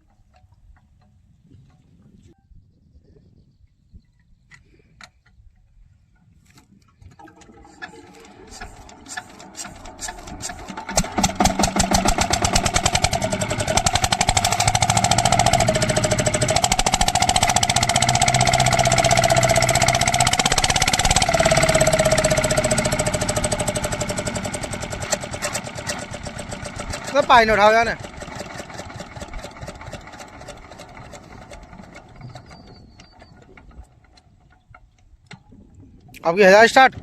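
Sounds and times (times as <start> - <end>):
diesel engine starting and running: 7.2 - 34.5.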